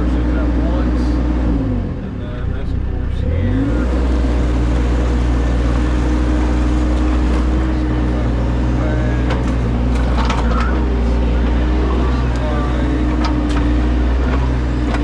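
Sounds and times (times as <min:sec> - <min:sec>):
engine running under load: 0:00.0 - 0:15.0
clanks and scrapes: 0:09.3 - 0:10.9.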